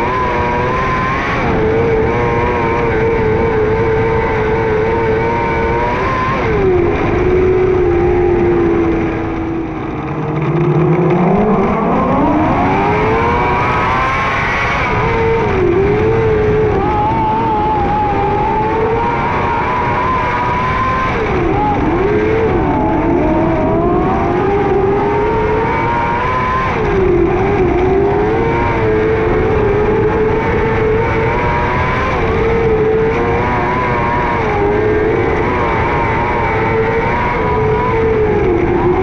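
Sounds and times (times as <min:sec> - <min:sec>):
racing car engine at high revs: 0:00.0 - 0:39.0.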